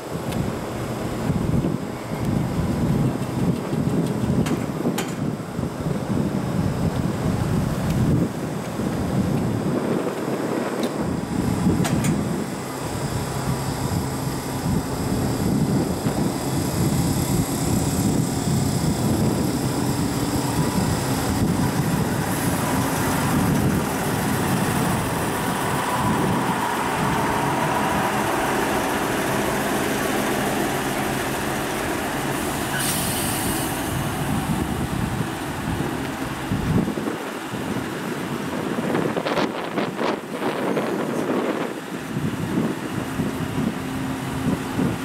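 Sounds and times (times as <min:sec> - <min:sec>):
diesel engine running: 0:00.0 - 0:45.0
wheels rumbling on rail: 0:00.0 - 0:45.0
air hiss: 0:19.8 - 0:35.4.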